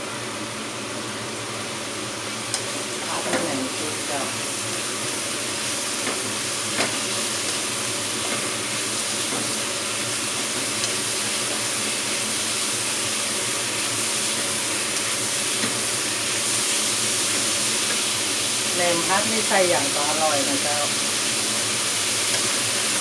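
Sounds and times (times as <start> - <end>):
pork sizzling in hot oil: 0.0 - 23.0.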